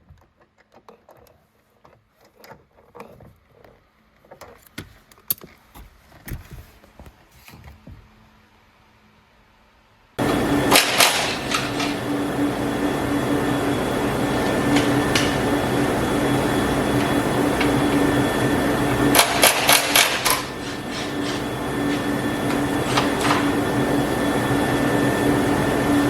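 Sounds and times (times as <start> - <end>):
machine hum: 10.2 - 26.0.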